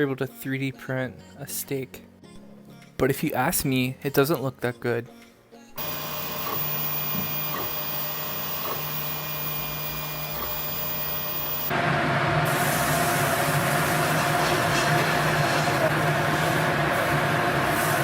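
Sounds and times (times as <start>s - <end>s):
food printer mechanical hum: 5.8s - 18.0s.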